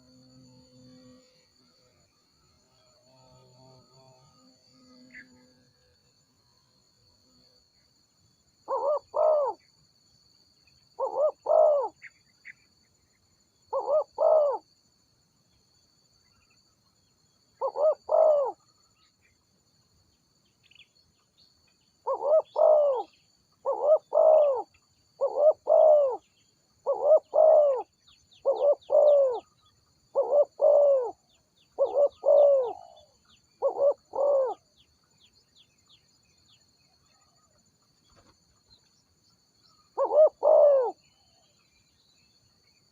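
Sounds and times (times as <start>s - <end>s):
faint high insect drone: 0.0s - 42.9s
dove cooing: 8.7s - 9.6s, 11.0s - 12.0s, 13.7s - 14.6s, 17.6s - 18.6s, 22.0s - 26.2s, 26.8s - 29.5s, 30.1s - 31.2s, 31.8s - 34.6s, 40.0s - 41.0s.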